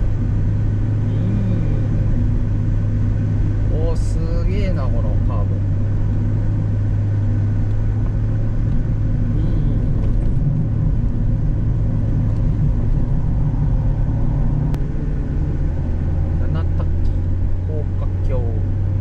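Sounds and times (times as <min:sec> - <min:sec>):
car engine droning: 0:00.0 - 0:19.0
road noise: 0:00.0 - 0:19.0.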